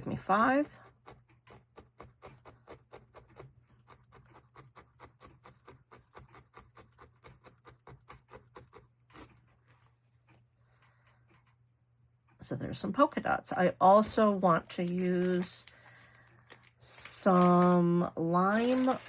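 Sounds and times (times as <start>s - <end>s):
felting needle poking foam: 0.0s - 10.4s.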